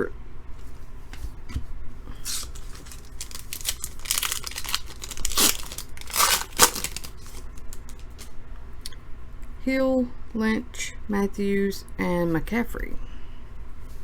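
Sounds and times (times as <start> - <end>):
wrapper tearing and crinkling: 2.2 - 8.3.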